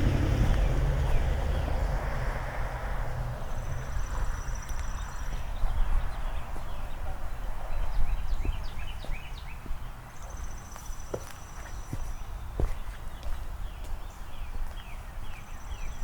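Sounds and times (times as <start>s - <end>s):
boot footsteps on pavement: 0.0s - 1.8s, 3.8s - 16.0s
birds chirping and trilling: 0.0s - 2.0s
low rumble: 0.0s - 4.0s.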